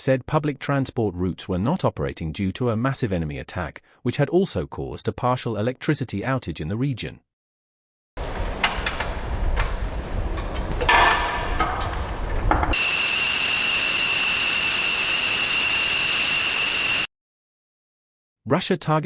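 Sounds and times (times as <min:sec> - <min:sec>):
sharp knocks and clanks: 0:08.4 - 0:12.8
jet engine hiss and whine: 0:12.7 - 0:17.1.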